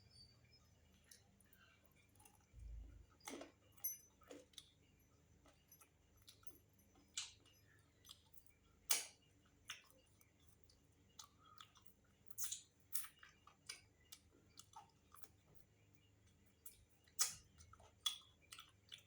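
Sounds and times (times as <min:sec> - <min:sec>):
chewing with wet mouth smacks: 0:04.2 - 0:19.0.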